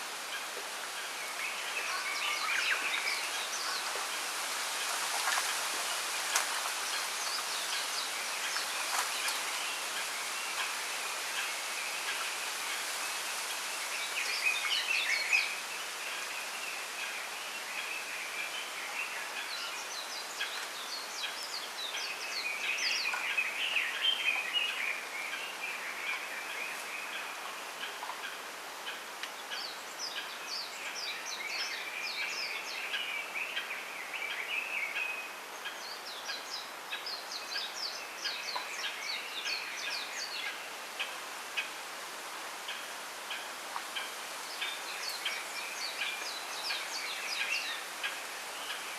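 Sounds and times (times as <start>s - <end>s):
soft steady hiss: 0.0s - 48.9s.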